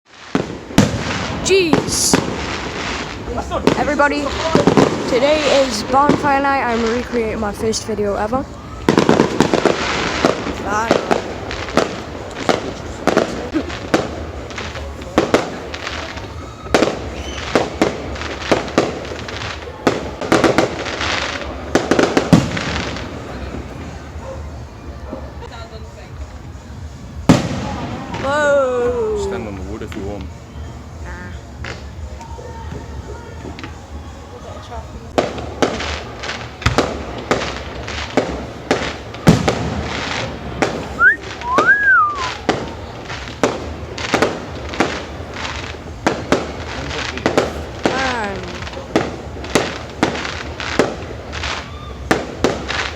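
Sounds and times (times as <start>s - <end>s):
firework whistle: 0.1s - 25.4s, 35.4s - 48.9s, 49.5s - 52.9s
crackling hiss: 0.1s - 52.9s
fireworks bangs: 0.1s - 52.9s.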